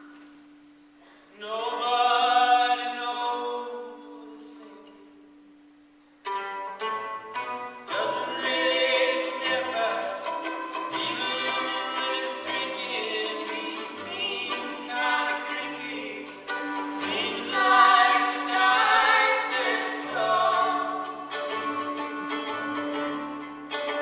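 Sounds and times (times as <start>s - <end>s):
bowed violin notes: 6.2s - 24.0s.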